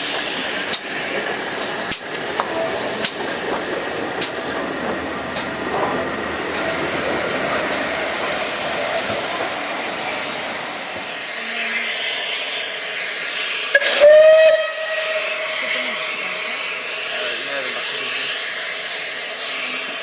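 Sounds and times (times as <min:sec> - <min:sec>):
steam locomotive hissing steam: 0:00.0 - 0:20.0
locomotive whistle: 0:13.7 - 0:16.2.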